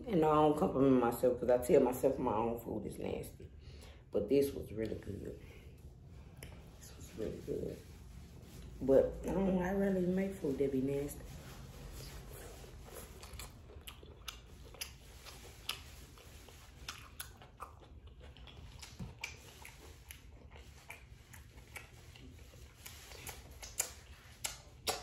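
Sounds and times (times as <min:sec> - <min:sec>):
chewing and mouth sounds: 0:12.2 - 0:25.0
fingers being licked: 0:13.2 - 0:15.9, 0:16.5 - 0:25.0.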